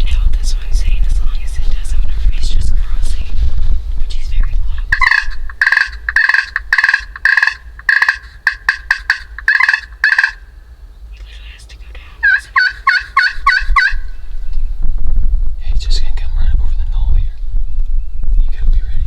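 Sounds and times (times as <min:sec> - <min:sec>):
turkey yelps: 0:04.9 - 0:10.7, 0:12.2 - 0:14.4.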